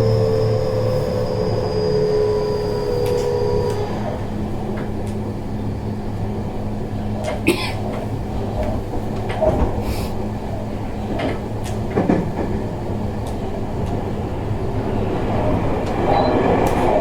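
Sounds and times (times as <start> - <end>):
traction motors whining: 0.0 - 9.8
train wheels rumbling on track: 0.0 - 17.0.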